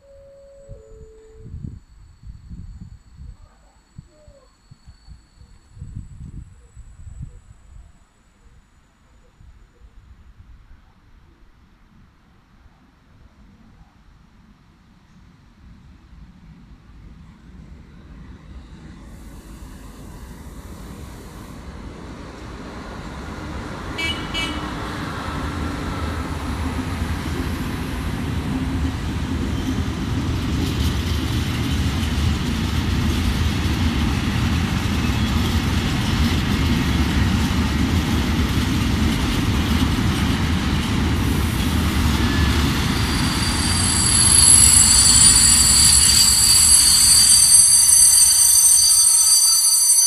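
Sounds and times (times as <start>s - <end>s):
train horn toot: 0.0s - 1.8s, 23.9s - 25.2s, 42.2s - 50.0s
freight train rumble and wheel noise: 13.2s - 50.0s
high wheel squeal: 41.5s - 50.0s.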